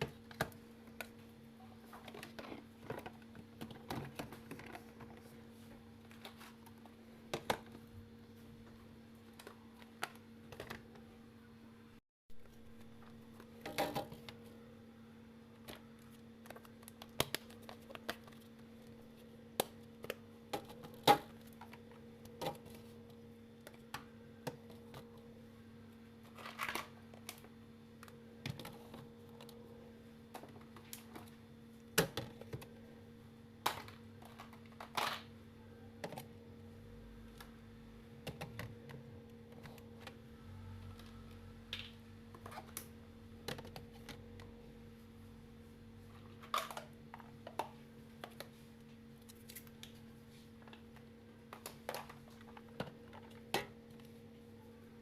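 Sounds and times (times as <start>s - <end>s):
steady low hum: 0.0s - 55.0s
clicks and knocks of fridge parts: 31.9s - 32.7s, 38.2s - 40.2s.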